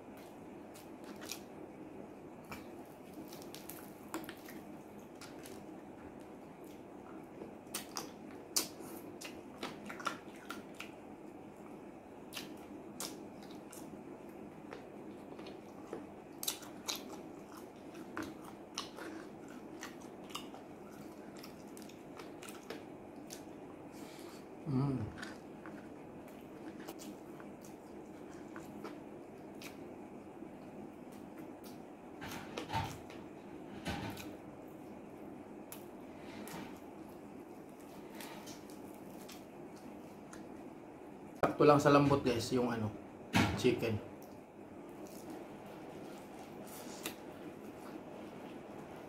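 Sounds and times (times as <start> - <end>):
wet chewing: 0.1 - 1.7, 2.4 - 33.2, 44.2 - 49.0
mouth clicks and crunches: 7.4 - 11.0, 14.6 - 23.6, 44.2 - 48.0.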